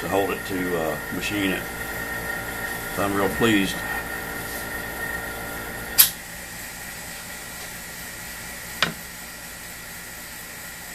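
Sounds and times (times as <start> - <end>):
air hissing: 0.0 - 6.1
low hum: 0.0 - 6.1
sharp click: 6.0 - 6.2.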